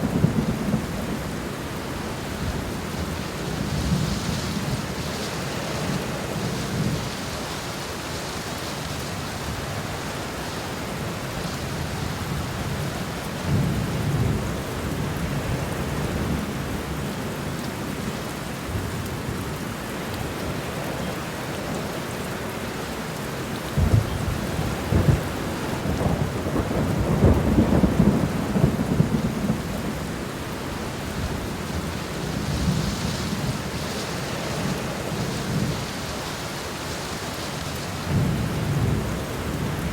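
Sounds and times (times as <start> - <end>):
rolling thunder: 0.0 - 1.4, 23.7 - 35.9, 38.0 - 39.9
steady rain falling: 0.0 - 39.9.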